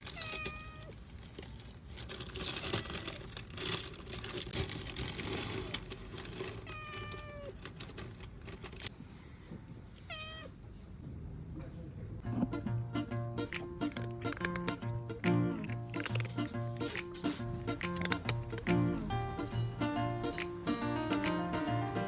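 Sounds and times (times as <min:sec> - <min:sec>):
rustling and clicking: 0:00.0 - 0:09.0, 0:13.6 - 0:14.9, 0:15.6 - 0:19.2
cat meowing: 0:00.1 - 0:00.9, 0:06.6 - 0:07.6, 0:10.0 - 0:10.6.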